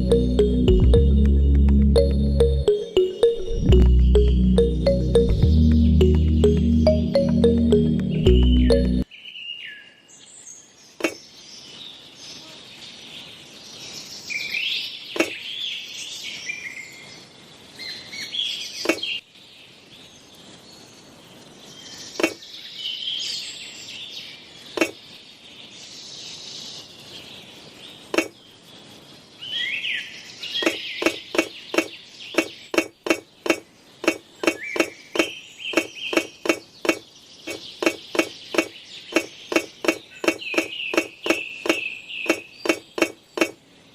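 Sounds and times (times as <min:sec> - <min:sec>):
birds chirping: 0:02.0 - 0:09.0, 0:15.0 - 0:15.6, 0:24.7 - 0:25.3, 0:27.9 - 0:28.7, 0:30.4 - 0:43.9.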